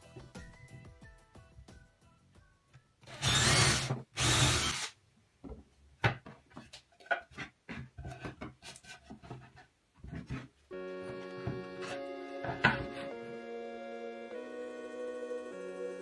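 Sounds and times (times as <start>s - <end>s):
power tool working wood: 3.1s - 4.9s.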